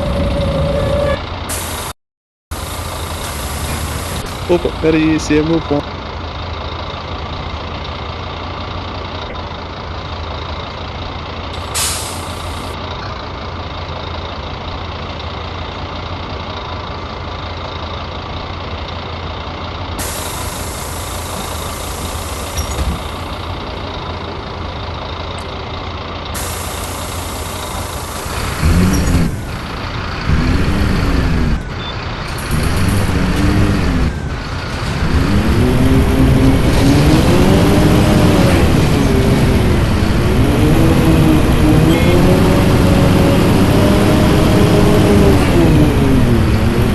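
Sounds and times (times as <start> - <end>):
bus engine idling: 0.0 - 1.9, 2.5 - 46.9
bus engine revving: 0.0 - 1.9, 2.6 - 46.9
air brake hiss: 1.5 - 1.9, 11.6 - 12.6, 20.0 - 22.6, 26.4 - 28.3.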